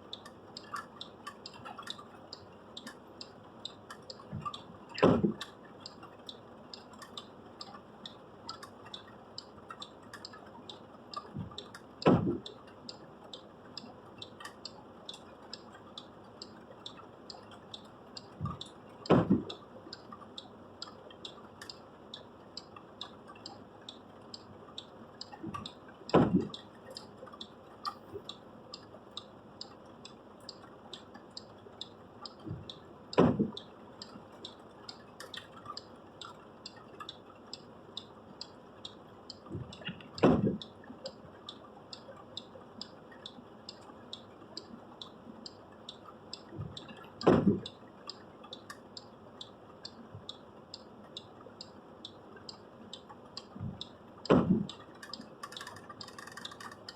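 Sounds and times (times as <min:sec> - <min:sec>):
light quick ticking: 0:54.7 - 0:56.9.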